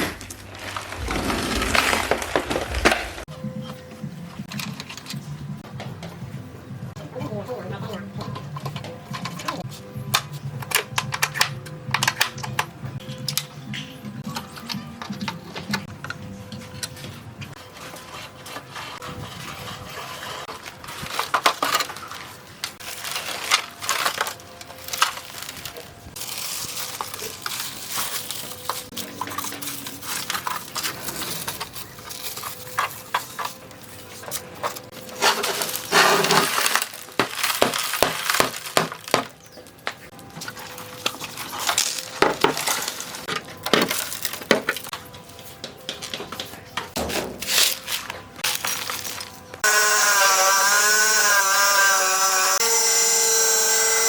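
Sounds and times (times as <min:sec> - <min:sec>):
clinks and scraping on metal parts: 0:14.3 - 0:49.7.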